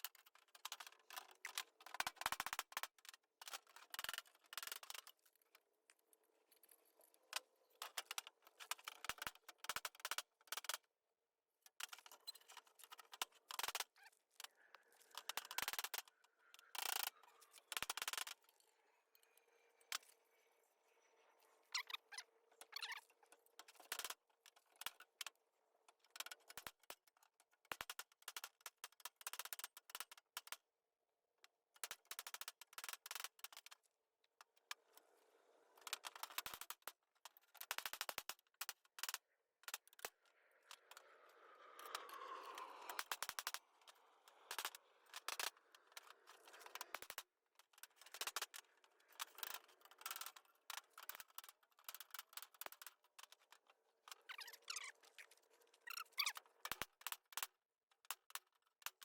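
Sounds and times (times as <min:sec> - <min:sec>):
scraping noise: 0:40.6 - 0:45.0.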